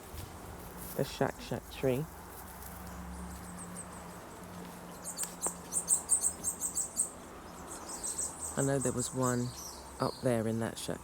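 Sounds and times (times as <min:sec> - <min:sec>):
small bird chirping: 0:02.8 - 0:11.0.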